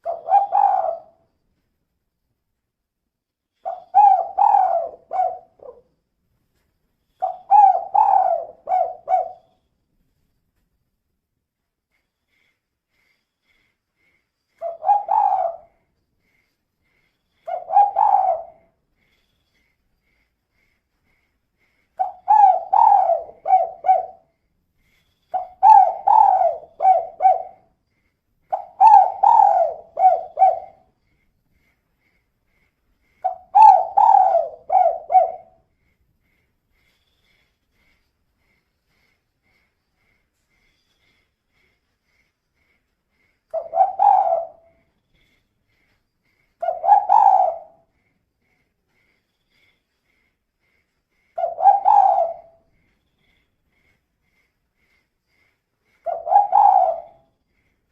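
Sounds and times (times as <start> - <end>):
dove cooing: 0.0 - 1.2, 3.6 - 5.9, 7.2 - 9.5, 14.6 - 15.8, 17.5 - 18.8, 22.0 - 24.3, 25.3 - 27.7, 28.5 - 30.9, 33.2 - 35.6, 43.5 - 44.8, 46.6 - 47.9, 51.4 - 52.6, 56.0 - 57.3.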